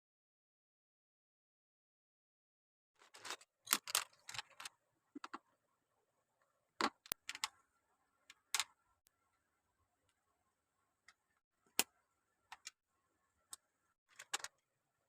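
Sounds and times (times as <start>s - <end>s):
plastic bricks clicking: 3.2s - 5.4s, 14.1s - 14.6s.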